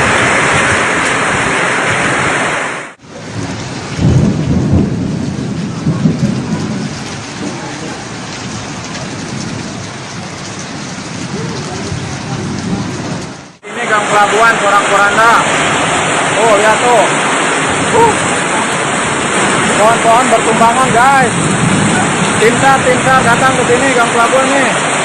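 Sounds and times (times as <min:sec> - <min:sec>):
heavy rain in strong wind: 0:00.0 - 0:25.0
steady rain: 0:00.0 - 0:25.0
low rumbling: 0:15.3 - 0:25.0.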